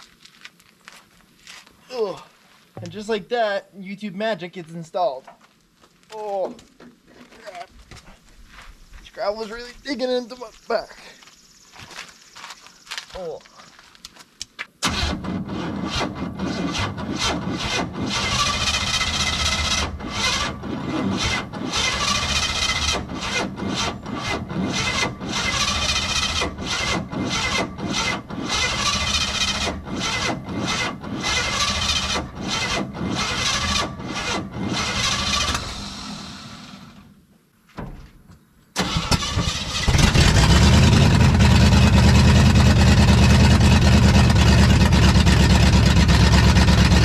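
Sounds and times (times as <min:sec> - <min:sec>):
starter motor cranking engine: 0:14.8 - 0:37.0, 0:38.8 - 0:47.0.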